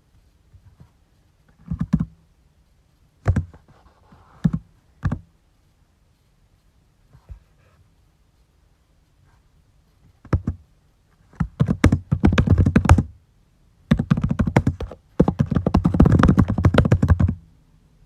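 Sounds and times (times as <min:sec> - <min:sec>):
computer keyboard keystrokes: 0:13.9 - 0:17.4.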